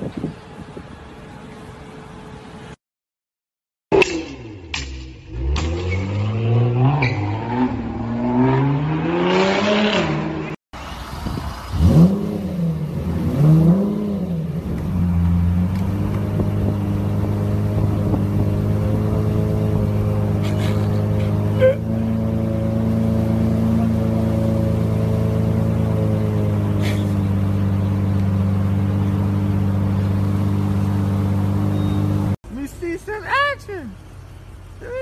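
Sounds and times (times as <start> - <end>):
sports car engine revving: 4.0 - 10.6, 11.6 - 32.4
car engine idling: 14.5 - 35.0.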